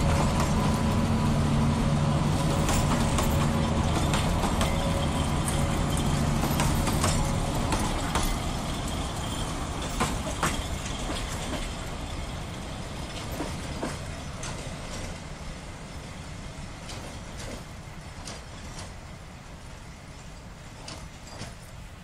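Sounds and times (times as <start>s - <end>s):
train rumbling: 0.0s - 22.0s
wheels clicking over rail joints: 0.0s - 22.0s.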